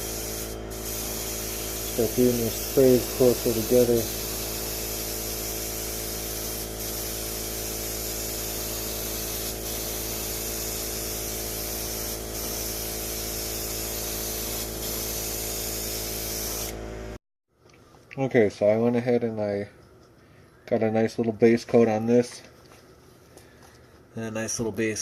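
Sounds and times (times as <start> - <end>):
airbrush spraying hiss: 0.0 - 16.8.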